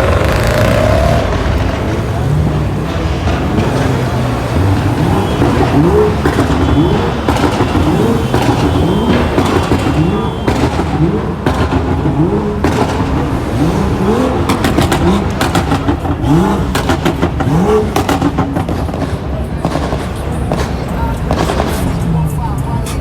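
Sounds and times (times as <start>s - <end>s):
car engine revving: 0.0s - 23.0s
exhaust pops and crackles: 0.0s - 23.0s.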